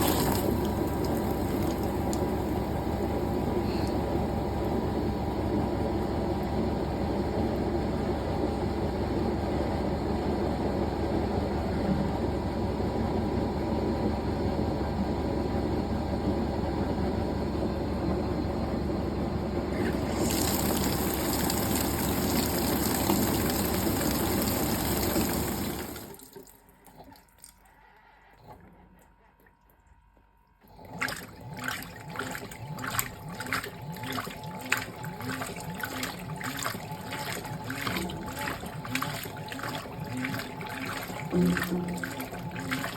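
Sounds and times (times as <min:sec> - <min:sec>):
water splashing into tub: 0:00.0 - 0:03.1, 0:19.8 - 0:27.6, 0:30.8 - 0:42.9
washing machine whooshing hum: 0:00.0 - 0:42.9.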